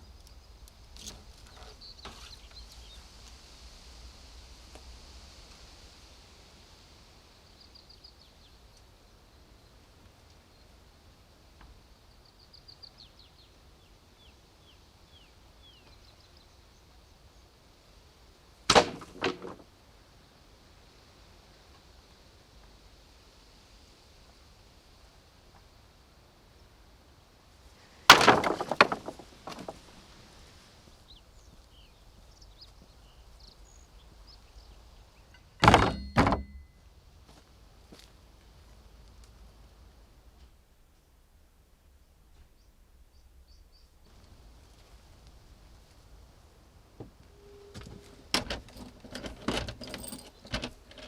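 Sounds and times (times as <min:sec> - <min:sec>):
vehicle door shutting: 0:35.6 - 0:36.6, 0:47.7 - 0:51.0
loud ringing thuds: 0:35.6 - 0:36.8.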